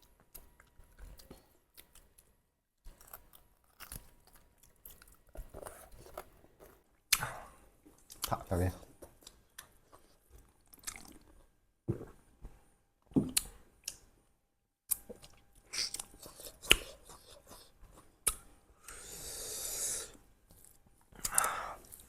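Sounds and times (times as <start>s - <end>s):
people chewing and crunching food: 0.0s - 12.6s, 14.9s - 22.0s.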